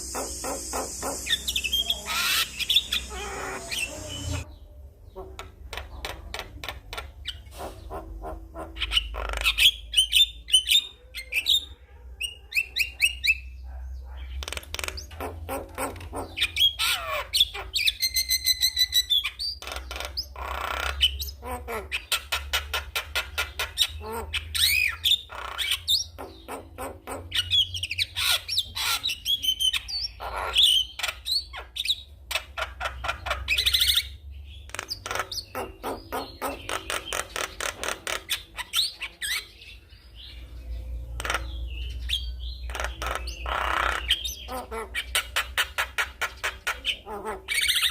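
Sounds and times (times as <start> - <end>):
bird singing: 0.0 - 11.7, 12.3 - 47.9.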